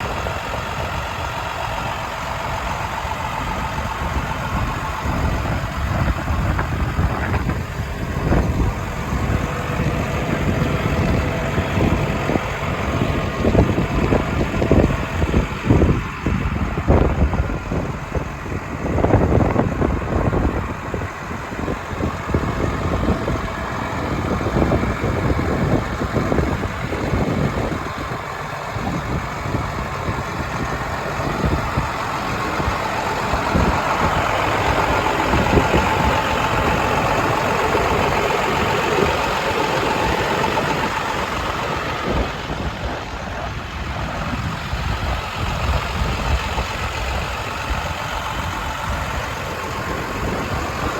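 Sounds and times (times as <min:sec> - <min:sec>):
diesel engine idling: 0:00.0 - 0:50.9.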